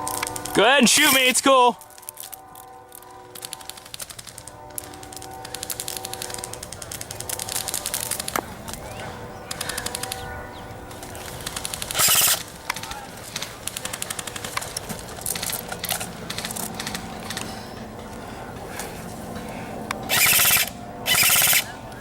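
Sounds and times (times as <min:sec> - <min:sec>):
airsoft rifles firing bursts: 0:03.4 - 0:10.2, 0:11.0 - 0:17.4, 0:20.1 - 0:21.7.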